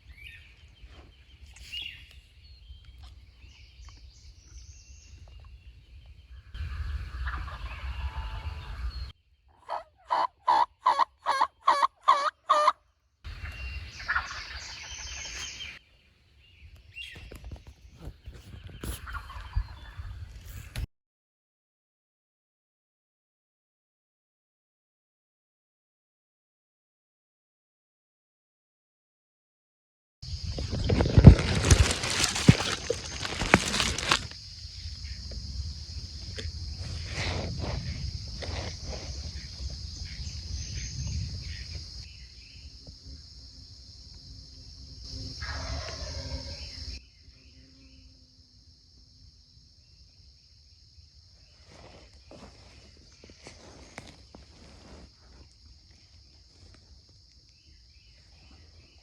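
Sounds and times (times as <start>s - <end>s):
high-pitched insect chorus: 3.3s - 9.1s, 13.3s - 15.8s, 30.3s - 59.0s
turkey yelps: 6.7s - 8.9s, 9.6s - 12.8s, 45.4s - 46.6s
rustling and handling: 30.6s - 34.4s.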